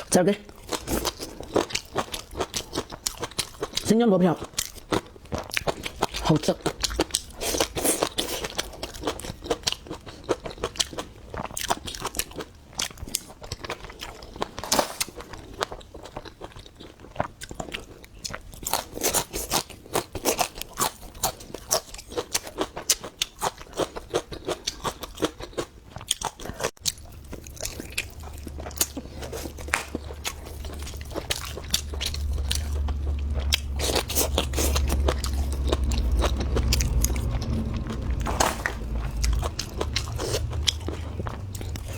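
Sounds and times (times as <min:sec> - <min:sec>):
chewing crunchy food: 0:00.0 - 0:41.9
low hum: 0:27.0 - 0:41.9.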